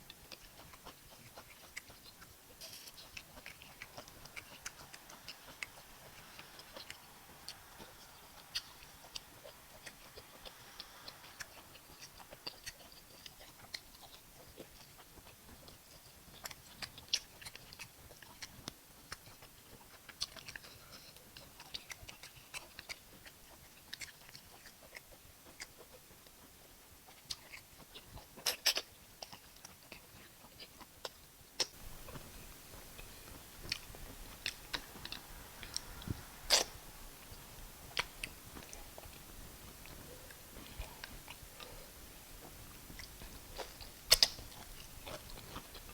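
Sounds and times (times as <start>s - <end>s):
person chewing food: 0.0s - 45.9s
wet mouth clicks and smacks: 30.6s - 39.2s, 42.4s - 45.7s.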